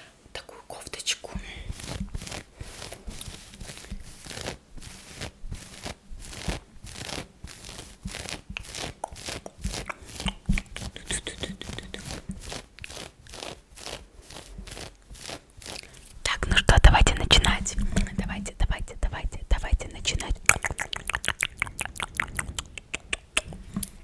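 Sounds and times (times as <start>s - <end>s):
close scratching and rustling: 1.6s - 18.6s.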